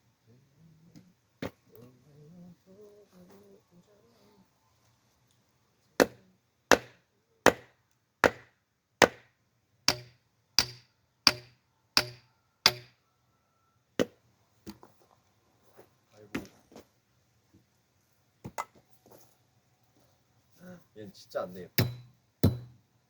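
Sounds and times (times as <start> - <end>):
axe chopping log: 6.0 - 9.3, 9.9 - 12.9, 21.8 - 22.8.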